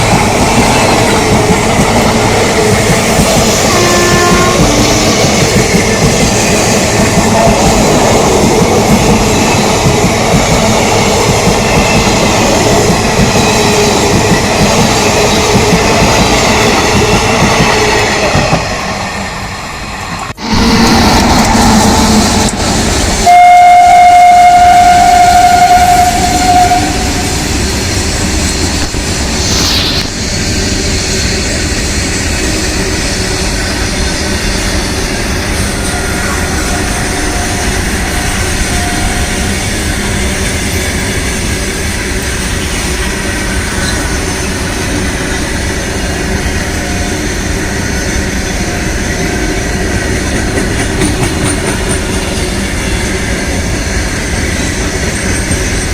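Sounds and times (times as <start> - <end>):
train rumbling on rails: 0.0 - 55.9
train horn blast: 3.6 - 4.8, 23.2 - 27.4, 35.8 - 39.7.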